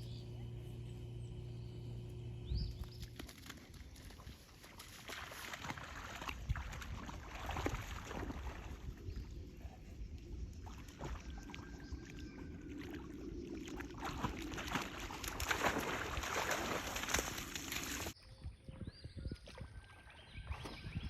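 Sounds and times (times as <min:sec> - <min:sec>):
low wind rumble: 0:00.0 - 0:03.2, 0:06.4 - 0:19.4
dogs splashing in water: 0:02.7 - 0:09.1, 0:10.5 - 0:18.2.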